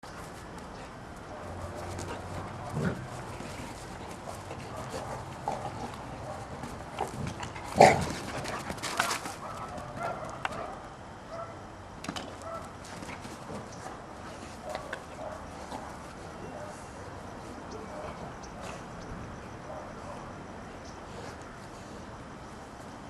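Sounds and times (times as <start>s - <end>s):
dogs barking: 1.2s - 3.4s, 4.2s - 7.1s, 7.7s - 11.6s, 12.4s - 12.8s, 14.6s - 17.0s, 19.5s - 20.4s.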